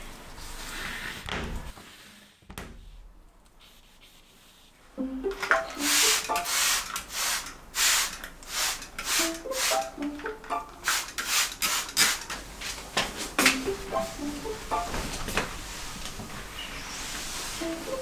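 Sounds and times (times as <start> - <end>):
light background music: 5.0 - 6.9, 9.0 - 11.2, 13.3 - 18.0.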